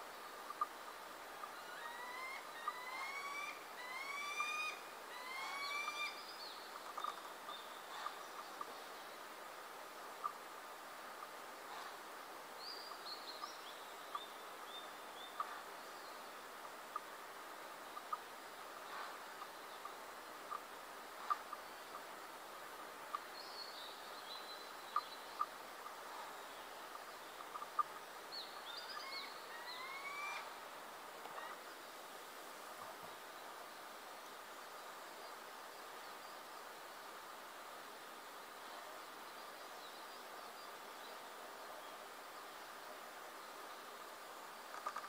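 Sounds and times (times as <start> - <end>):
steady outdoor hiss: 0.0 - 45.0
faint bird chirps: 0.3 - 9.4, 12.6 - 17.1, 23.0 - 30.6
rising whistled bird call: 29.0 - 30.5
sharp bird ticks: 44.7 - 45.0.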